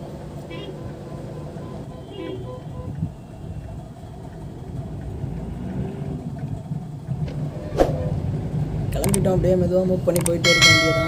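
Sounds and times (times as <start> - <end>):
car engine and road rumble: 0.0 - 11.0
sharp click: 9.0 - 9.3, 10.1 - 10.4.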